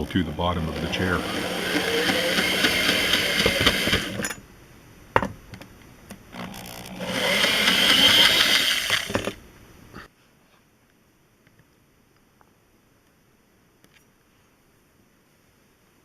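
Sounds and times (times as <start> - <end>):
cordless drill backing out screws: 0.7 - 4.4, 6.4 - 9.4.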